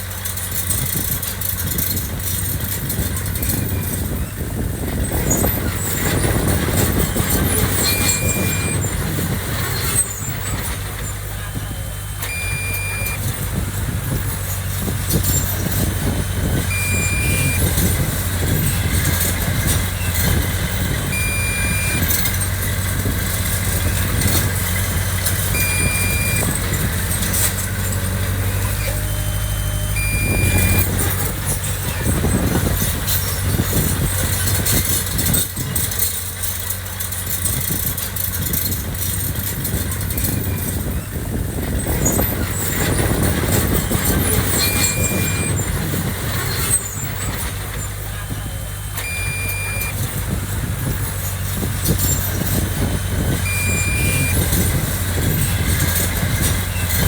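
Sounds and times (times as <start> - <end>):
diesel engine running: 0.0 - 57.0
short high beeps: 7.8 - 8.9, 12.0 - 13.3, 16.7 - 17.9, 21.0 - 22.4, 25.5 - 26.6, 28.8 - 31.0, 48.9 - 50.1, 53.5 - 54.6.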